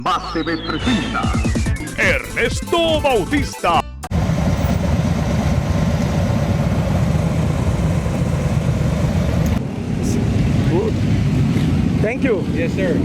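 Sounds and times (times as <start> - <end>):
motorcycle engines idling: 4.1 - 13.0.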